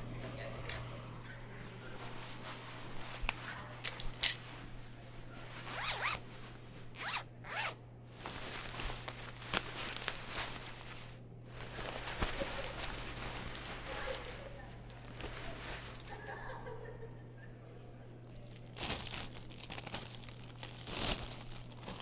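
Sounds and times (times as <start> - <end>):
zipper pulled: 5.7 - 6.2, 7.0 - 7.8.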